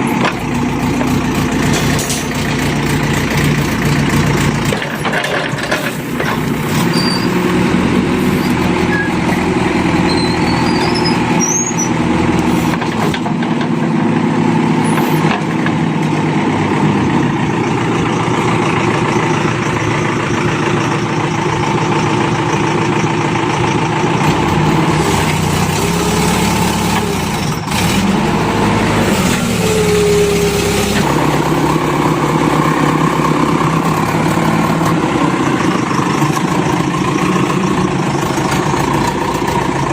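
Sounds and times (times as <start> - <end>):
backhoe diesel engine running: 0.0 - 39.9
tractor engine: 0.0 - 39.9.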